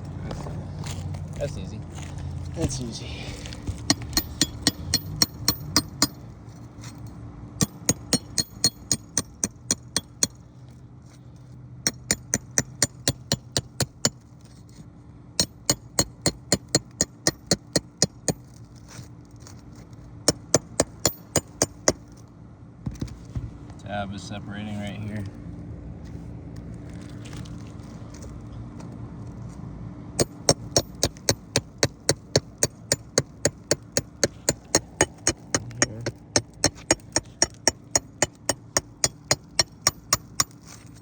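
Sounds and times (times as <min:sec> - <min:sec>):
hammer tapping metal: 0:03.8 - 0:06.2, 0:07.6 - 0:10.4, 0:11.9 - 0:14.2, 0:15.4 - 0:18.4, 0:20.3 - 0:22.1, 0:30.2 - 0:40.7.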